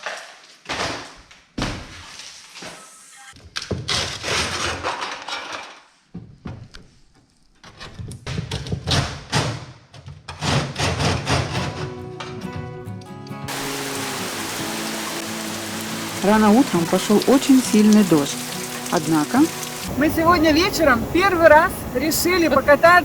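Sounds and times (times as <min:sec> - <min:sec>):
music: 0:11.3 - 0:21.4.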